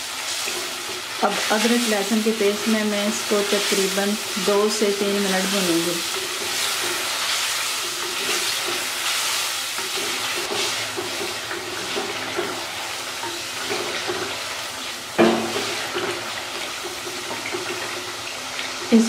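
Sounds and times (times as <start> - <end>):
chicken sizzling in a pot: 0.0 - 19.0
wooden spoon stirring and scraping: 5.4 - 14.4.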